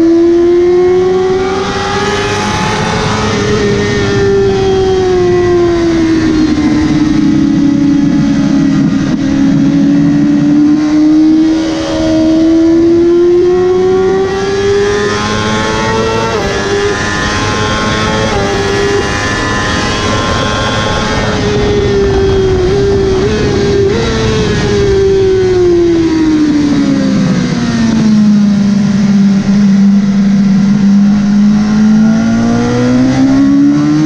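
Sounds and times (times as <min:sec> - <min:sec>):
motorcycle engine revving high: 0:00.0 - 0:34.0
wind rushing: 0:01.1 - 0:28.2.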